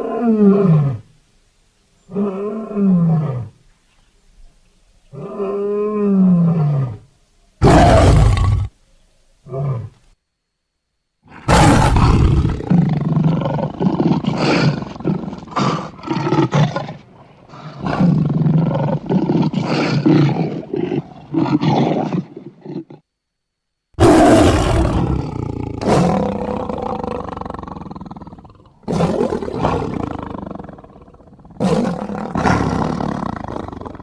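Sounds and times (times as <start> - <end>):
big cat roaring: 7.6 - 8.8, 11.3 - 23.0, 24.0 - 34.0
drawn-out falling roar call: 7.6 - 8.8, 11.3 - 23.1, 24.0 - 34.0.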